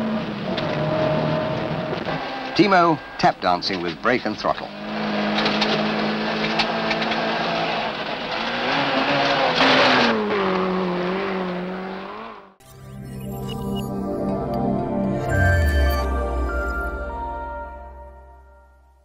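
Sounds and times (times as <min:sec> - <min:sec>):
rally car engine revving: 0:00.0 - 0:12.6
music: 0:12.6 - 0:19.0.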